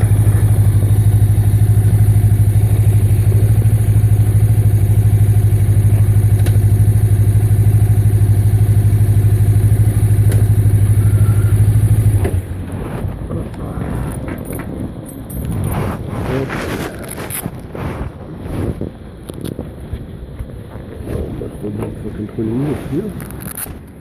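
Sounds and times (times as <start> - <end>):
motorcycle engine idling: 0.0 - 15.8.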